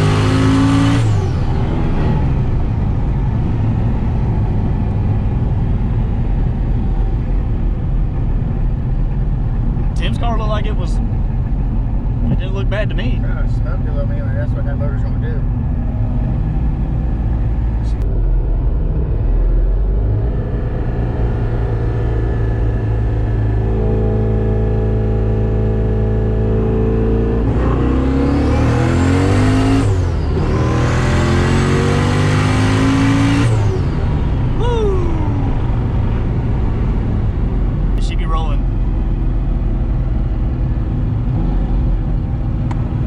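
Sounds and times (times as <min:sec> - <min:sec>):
car engine revving: 0:00.0 - 0:43.0
turbo whine: 0:09.5 - 0:26.6.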